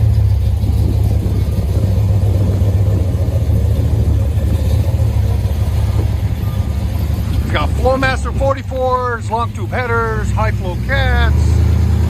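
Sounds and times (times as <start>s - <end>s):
car engine with choppy rumble: 0.0s - 12.0s.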